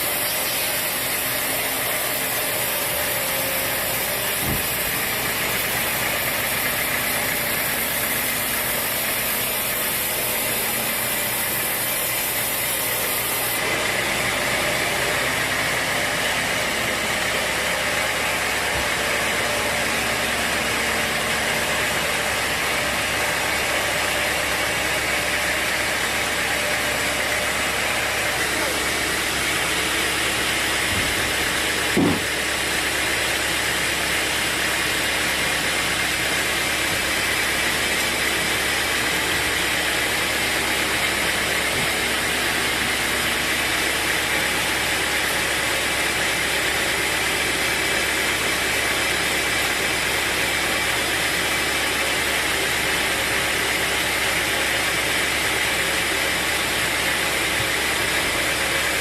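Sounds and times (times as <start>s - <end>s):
sawmill machinery running: 0.0s - 59.0s
short knock: 31.9s - 32.3s.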